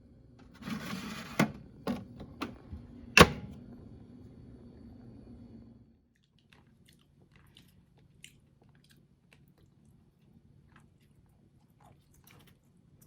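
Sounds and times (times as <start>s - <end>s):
chewing and crunching: 6.2s - 13.0s.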